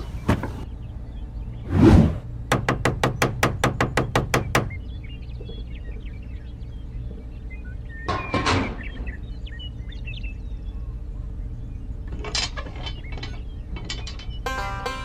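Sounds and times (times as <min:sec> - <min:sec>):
steady low hum: 0:00.0 - 0:15.0
mechanical clattering knocks: 0:02.5 - 0:04.8
plucked-string music: 0:14.4 - 0:15.0.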